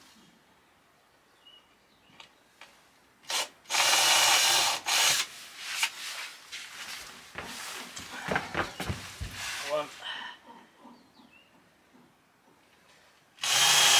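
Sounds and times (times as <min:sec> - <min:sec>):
cordless drill boring through plywood: 0:03.3 - 0:05.3, 0:13.4 - 0:13.9.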